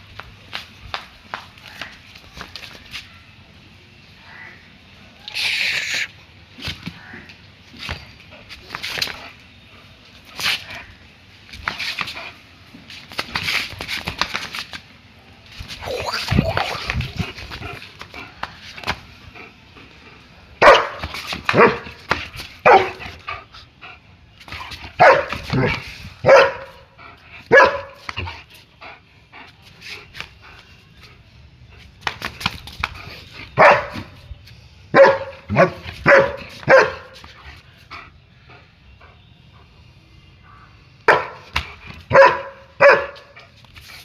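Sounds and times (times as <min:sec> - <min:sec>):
dog barking: 0:20.6 - 0:21.0, 0:21.6 - 0:21.9, 0:22.6 - 0:23.0, 0:25.0 - 0:26.8, 0:27.5 - 0:28.0, 0:33.6 - 0:34.0, 0:35.0 - 0:37.2, 0:41.1 - 0:41.4, 0:42.1 - 0:43.3.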